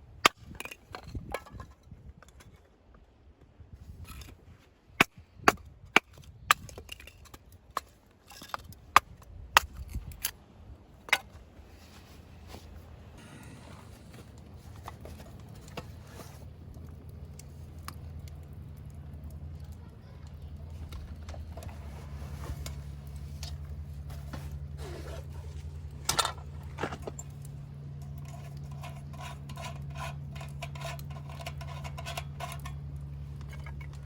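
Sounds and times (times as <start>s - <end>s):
faint low hum: 8.3s - 34.0s.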